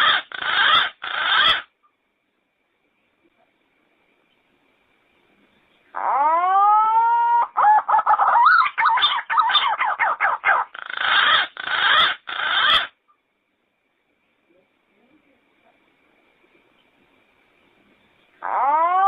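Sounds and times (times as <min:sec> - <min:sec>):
pigeon calling: 0:00.0 - 0:01.7, 0:05.9 - 0:13.0, 0:18.4 - 0:19.0.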